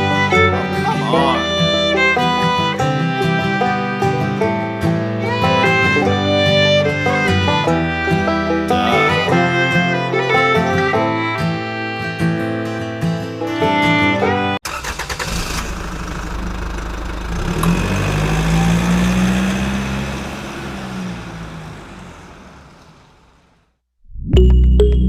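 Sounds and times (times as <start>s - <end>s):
music: 0.0s - 14.6s, 24.3s - 25.0s
engine running low rumble: 15.4s - 24.8s.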